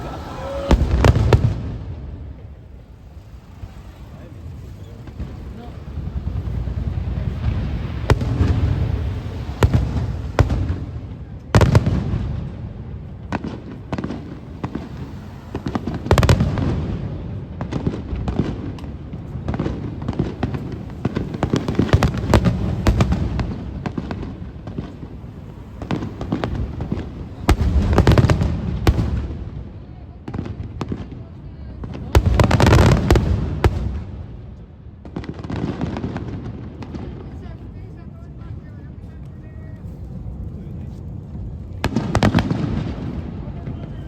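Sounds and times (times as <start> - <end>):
low rumble of booms: 0.0 - 31.2
fireworks bangs: 0.0 - 44.0.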